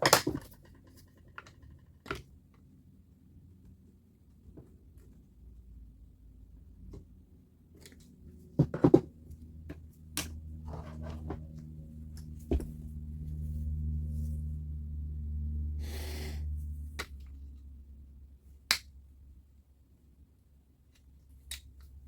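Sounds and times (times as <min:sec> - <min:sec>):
steady low hum: 0:05.2 - 0:22.0.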